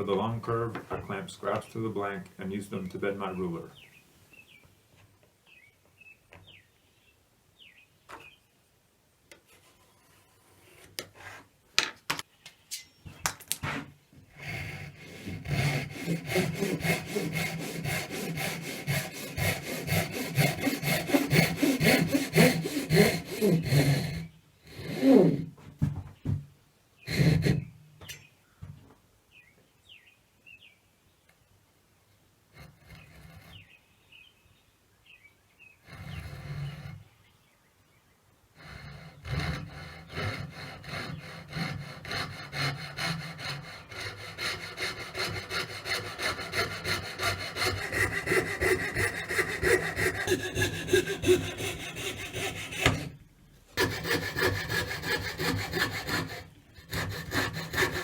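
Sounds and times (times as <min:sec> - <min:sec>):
hand saw cutting wood: 0:13.6 - 0:25.6, 0:27.1 - 0:27.7, 0:32.6 - 0:33.8, 0:35.8 - 0:37.1, 0:38.6 - 0:58.0.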